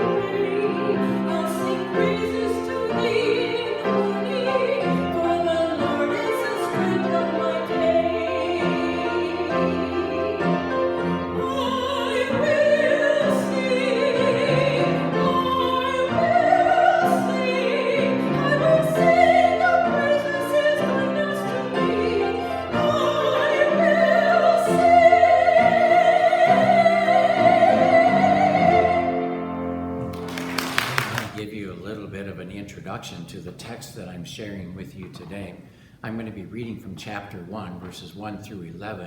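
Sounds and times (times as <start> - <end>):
person singing with vibrato: 0.0 - 29.4.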